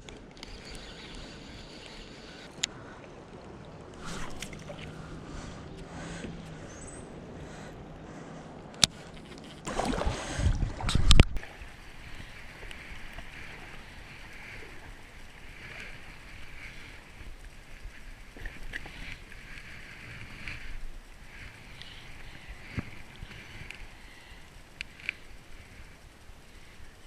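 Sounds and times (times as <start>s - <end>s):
water rushing: 3.1s - 5.7s, 9.7s - 16.6s.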